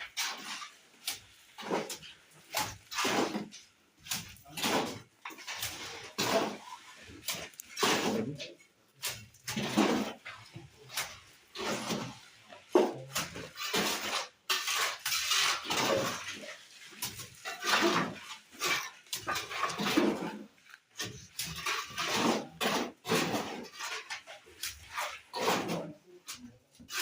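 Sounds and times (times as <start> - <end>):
trowel scraping and clinking mortar: 0.0 - 27.0.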